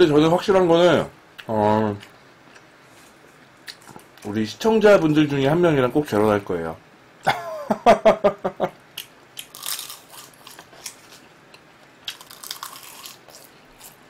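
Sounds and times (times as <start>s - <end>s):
person laughing: 7.3s - 8.8s
chewing food crunches: 9.0s - 11.2s, 12.0s - 14.0s.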